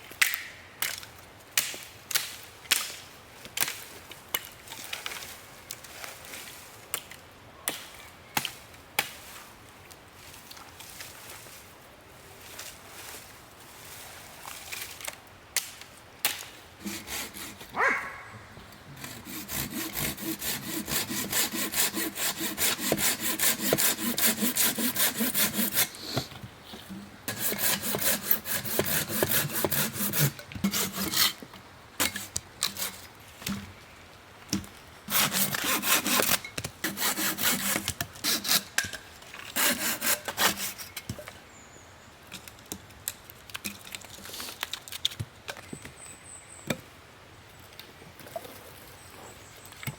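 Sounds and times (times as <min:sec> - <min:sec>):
hand saw cutting wood: 0:16.8 - 0:17.7, 0:18.9 - 0:26.3, 0:27.3 - 0:31.4, 0:32.0 - 0:33.0, 0:35.1 - 0:40.9.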